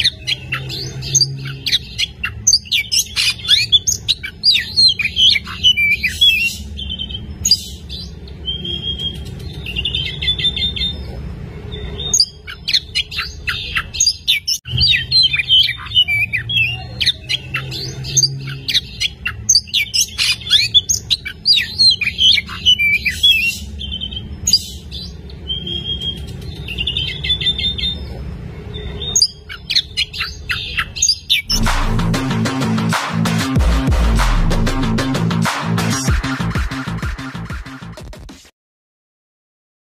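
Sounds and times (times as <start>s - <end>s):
bird singing: 0.0s - 31.7s
low hum: 31.5s - 35.9s.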